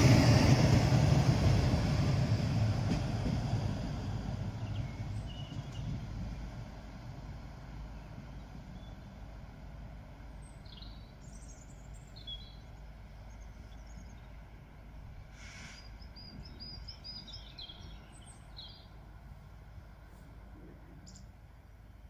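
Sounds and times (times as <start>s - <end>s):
small birds chirping: 4.6s - 6.1s, 10.3s - 15.1s, 15.8s - 19.0s, 21.0s - 21.4s
brief hiss: 15.3s - 16.0s.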